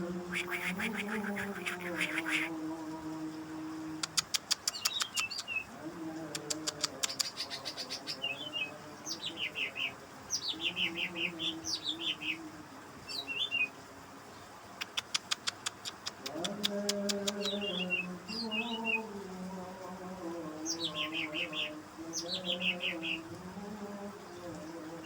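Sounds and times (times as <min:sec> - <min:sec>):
bird dry ticking: 0:00.3 - 0:02.5, 0:04.0 - 0:08.0, 0:14.8 - 0:17.6
bird whistled song: 0:04.6 - 0:05.7.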